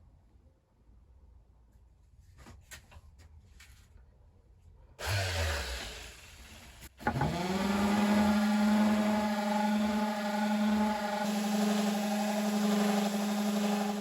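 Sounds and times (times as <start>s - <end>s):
electric power tool whining: 5.0s - 14.0s.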